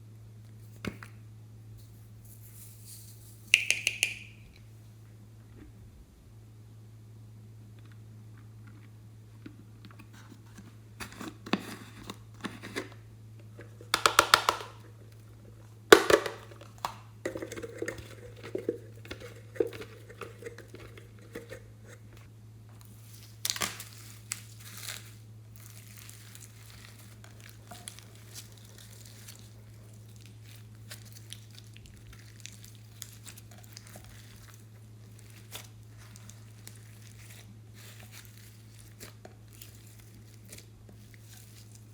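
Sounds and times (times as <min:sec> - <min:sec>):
steady low hum: 0:00.0 - 0:41.9
slime crinkling and crackling: 0:22.8 - 0:41.9.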